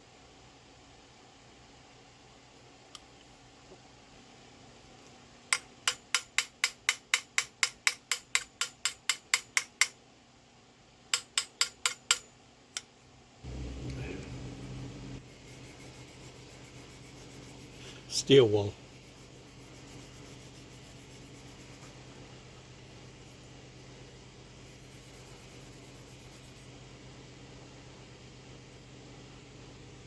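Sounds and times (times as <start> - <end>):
small hammer tapping brass: 5.5 - 10.0, 11.2 - 12.3
low rubbing and handling noise: 13.5 - 23.8.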